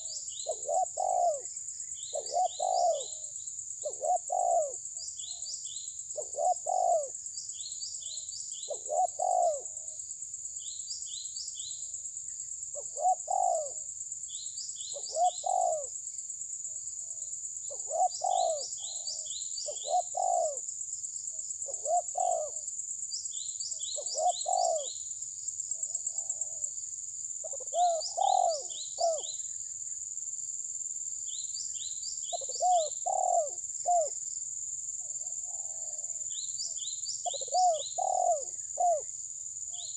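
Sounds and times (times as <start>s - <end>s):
birds calling low notes: 0.0s - 1.5s, 2.1s - 5.4s, 8.7s - 9.8s, 14.9s - 15.9s, 17.0s - 20.6s, 21.6s - 22.6s, 23.9s - 24.9s, 27.4s - 29.3s, 32.3s - 34.1s, 37.2s - 39.0s
small bird high chirps: 0.0s - 9.7s, 12.8s - 15.9s, 17.7s - 20.6s, 23.2s - 25.1s, 27.4s - 30.0s, 31.3s - 34.1s, 35.2s - 39.1s.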